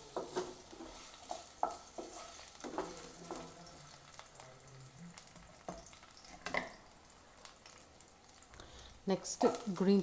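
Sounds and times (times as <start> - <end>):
spatula stirring: 0.0 - 4.3
potatoes sizzling in oil: 0.0 - 10.0.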